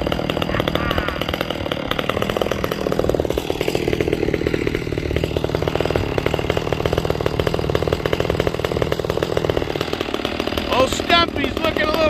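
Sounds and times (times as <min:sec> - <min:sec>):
two-stroke chainsaw running: 0:00.0 - 0:12.0.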